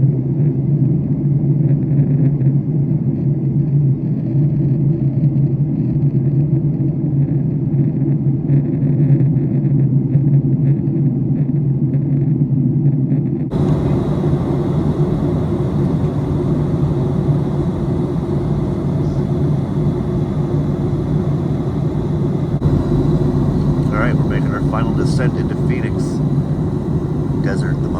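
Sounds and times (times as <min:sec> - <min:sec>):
airliner cabin noise: 0:13.5 - 0:27.9.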